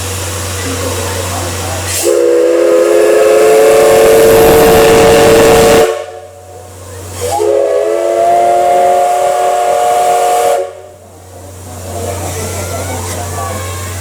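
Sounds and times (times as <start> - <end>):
loud steam hiss: 0.0 - 14.0
steam locomotive whistle: 1.9 - 6.5, 7.2 - 11.0.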